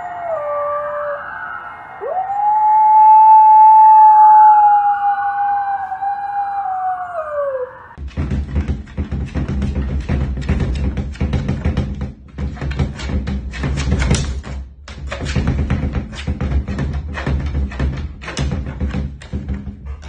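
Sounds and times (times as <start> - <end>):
dog howling: 0.0 - 8.0.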